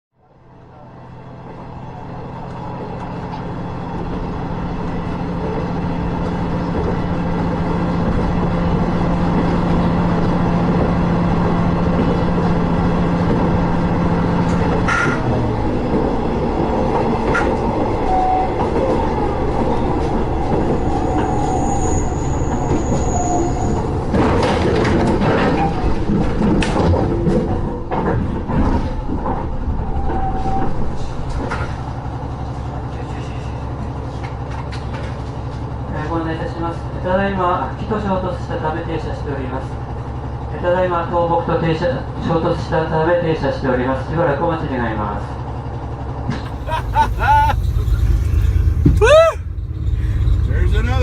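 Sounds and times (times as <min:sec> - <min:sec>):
train running on rails: 0:00.2 - 0:51.0
low hum: 0:46.5 - 0:51.0.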